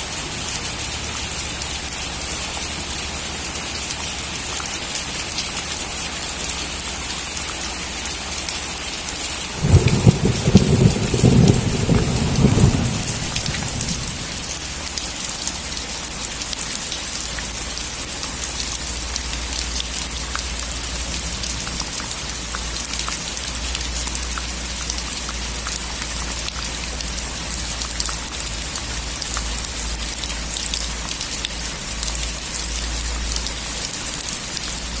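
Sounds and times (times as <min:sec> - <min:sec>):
heavy rain on a metal roof: 0:00.0 - 0:35.0
thunder rumbling: 0:09.6 - 0:14.6.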